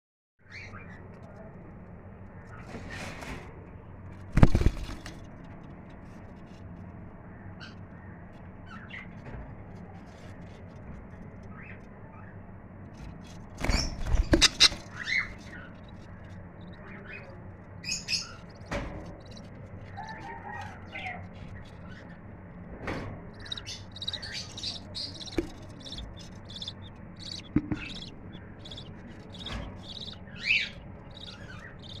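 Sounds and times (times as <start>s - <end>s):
budgerigars chirping: 13.6s - 22.0s, 23.3s - 32.0s
loud knocks: 26.6s - 30.2s.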